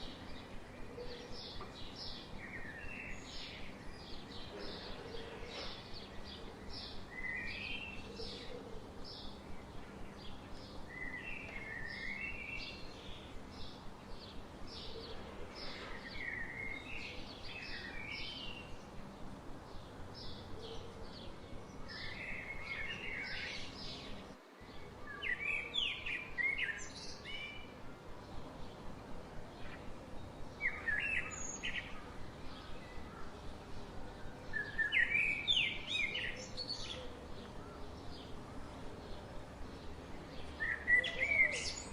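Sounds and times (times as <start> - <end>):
steady background hiss: 0.0 - 41.9
birds chirping and singing: 29.6 - 41.9.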